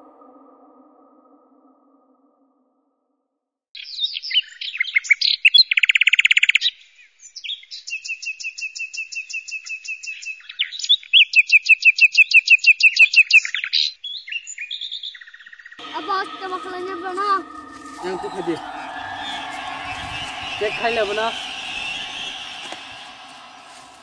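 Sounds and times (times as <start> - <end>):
birds singing: 15.8 - 24.0.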